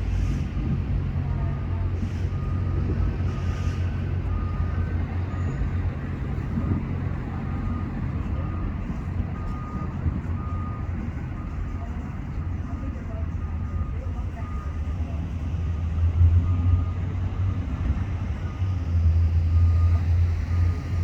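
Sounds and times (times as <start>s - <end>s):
vehicle engine rumble: 0.0s - 21.0s.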